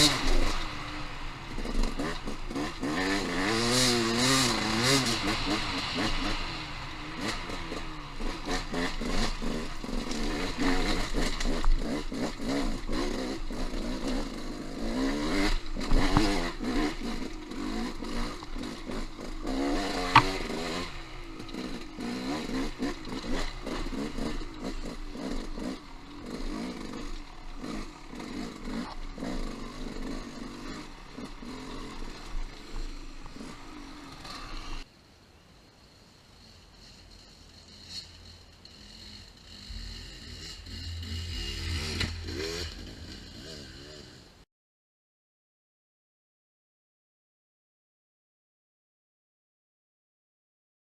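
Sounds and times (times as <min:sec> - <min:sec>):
clatter on rough ground: 0:00.0 - 0:34.8
motorcycle engine revving: 0:00.0 - 0:34.9, 0:36.4 - 0:44.4.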